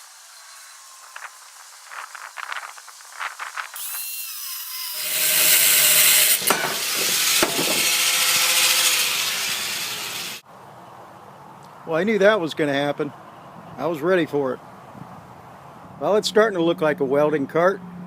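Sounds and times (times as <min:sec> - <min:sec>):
angle grinder cutting metal: 0:00.0 - 0:02.5, 0:03.5 - 0:10.4.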